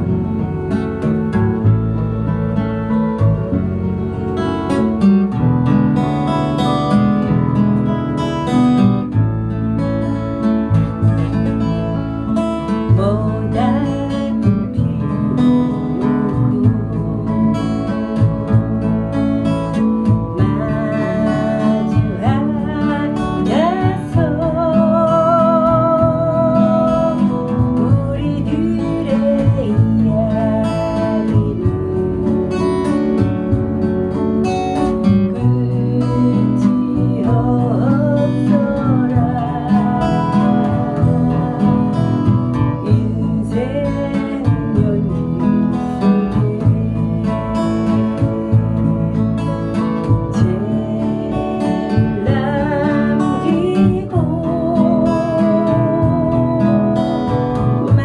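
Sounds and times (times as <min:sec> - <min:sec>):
strummed acoustic guitar: 0:00.0 - 0:58.0.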